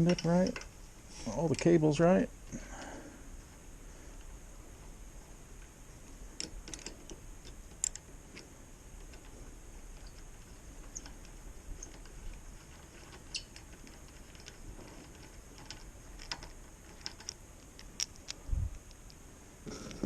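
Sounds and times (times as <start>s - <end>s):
small hardware clicking and tapping: 6.4s - 19.2s.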